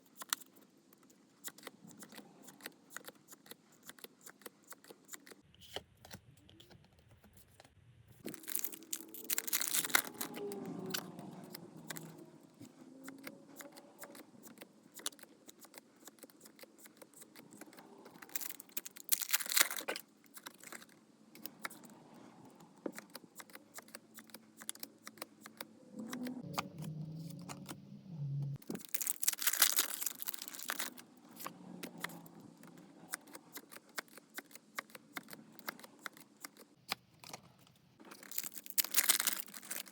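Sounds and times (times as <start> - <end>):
foil crinkling and rustling: 8.3 - 10.4, 18.3 - 20.0, 28.7 - 31.0, 38.1 - 39.9
foil wrapper tearing: 8.3 - 10.4, 18.3 - 19.9, 28.8 - 31.0, 38.1 - 39.9.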